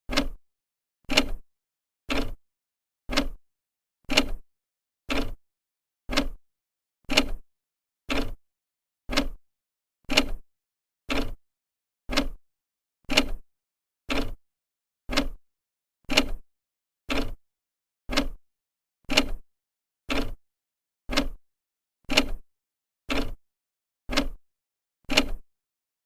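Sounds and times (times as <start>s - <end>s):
clock ticking: 0.1s - 0.4s, 2.1s - 2.4s, 3.1s - 3.4s, 5.1s - 5.4s, 6.1s - 6.4s, 8.1s - 8.4s, 9.1s - 9.4s, 11.1s - 11.4s, 12.1s - 12.4s, 14.1s - 14.4s, 15.1s - 15.4s, 17.1s - 17.4s, 18.1s - 18.4s, 20.1s - 20.4s, 21.1s - 21.4s, 22.1s - 22.4s, 23.1s - 23.4s, 24.1s - 24.4s.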